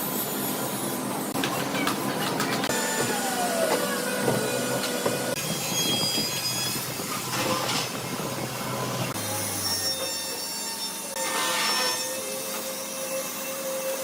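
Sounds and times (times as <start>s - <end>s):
woodworking machine cutting wood: 2.5s - 5.4s.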